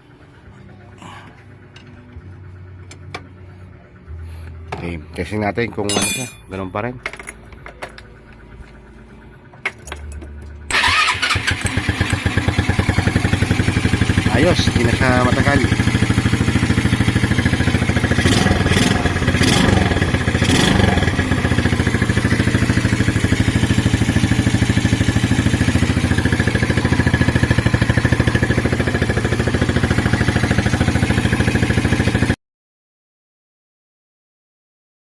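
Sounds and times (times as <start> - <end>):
motorcycle engine idling: 0.0 - 5.3, 7.0 - 32.4.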